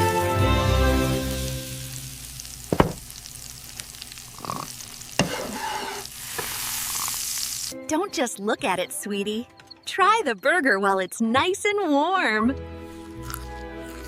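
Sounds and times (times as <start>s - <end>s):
food sizzling in a pan: 0.0s - 7.8s.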